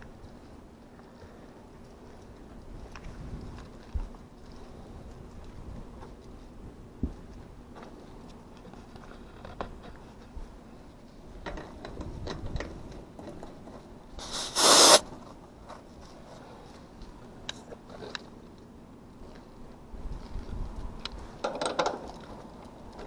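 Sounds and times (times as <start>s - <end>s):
refrigerant hissing: 14.2s - 15.0s.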